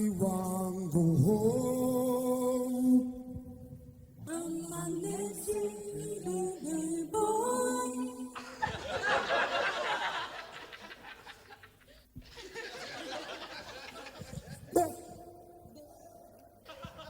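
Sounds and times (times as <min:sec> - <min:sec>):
unaccompanied voices singing: 0:04.2 - 0:08.6
audience laughing and chattering: 0:08.4 - 0:14.8, 0:16.0 - 0:17.0.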